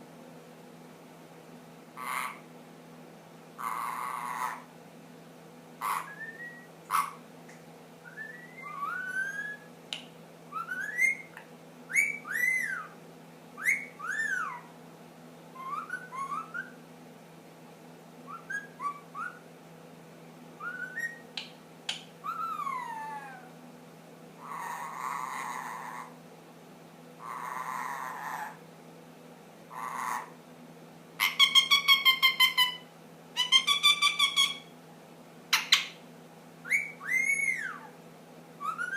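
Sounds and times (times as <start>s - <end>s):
parakeet whistling: 5.8s - 7.2s, 8.1s - 9.7s, 10.5s - 13.0s, 13.6s - 14.7s, 15.6s - 16.8s, 18.3s - 19.4s, 20.6s - 21.3s, 22.2s - 23.4s, 31.2s - 32.8s, 33.4s - 34.7s, 36.6s - 37.9s, 38.6s - 38.9s.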